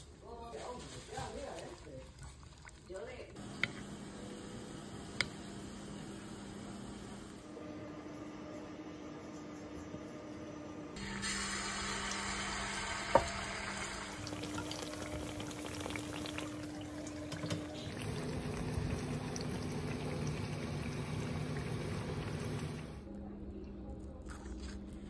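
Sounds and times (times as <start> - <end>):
batter frying in hot oil: 11.0 - 23.0.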